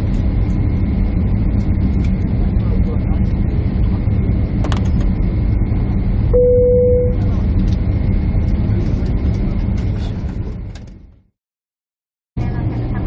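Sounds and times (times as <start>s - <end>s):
jet airliner cabin rumble: 0.0s - 11.3s, 12.4s - 13.0s
brief single tone: 6.4s - 7.3s.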